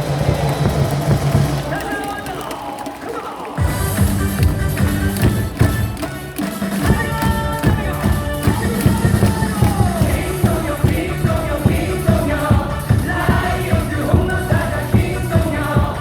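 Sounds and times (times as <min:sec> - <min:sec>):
drum beat: 0:00.0 - 0:16.0
crowd singing along: 0:06.7 - 0:16.0.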